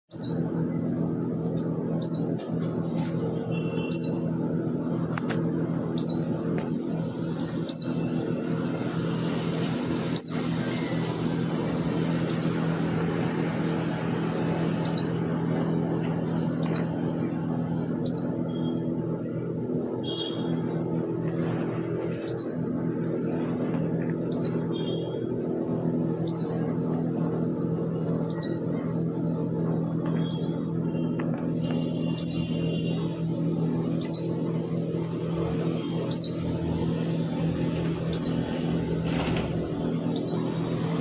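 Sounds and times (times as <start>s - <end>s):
steady low hum: 0.1s - 41.0s
bird chirping: 2.0s - 2.4s, 3.6s - 4.2s, 6.0s - 6.3s, 7.6s - 8.1s, 10.1s - 10.8s, 12.2s - 12.6s, 14.8s - 15.2s, 16.6s - 17.0s, 18.0s - 18.6s, 20.0s - 20.5s, 22.2s - 22.6s, 24.3s - 25.1s, 26.2s - 26.6s, 28.3s - 28.6s, 30.2s - 30.7s, 32.1s - 32.6s, 34.0s - 34.4s, 36.1s - 36.5s, 38.1s - 38.5s
buzzy bird note: 5.9s - 33.2s.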